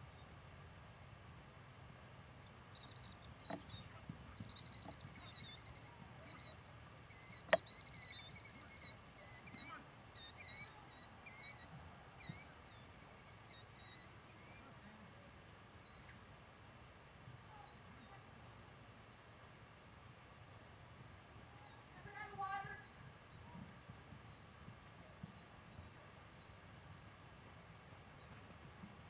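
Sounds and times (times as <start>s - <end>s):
songbird singing trilled phrases: 2.7s - 14.8s, 15.8s - 16.3s, 16.9s - 18.2s, 19.0s - 19.4s, 20.9s - 21.9s.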